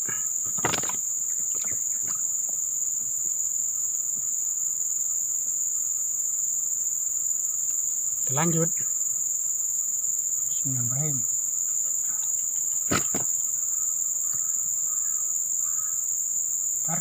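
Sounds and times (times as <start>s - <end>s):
insects droning: 0.0s - 17.0s
short knocks or rustles: 12.8s - 13.4s.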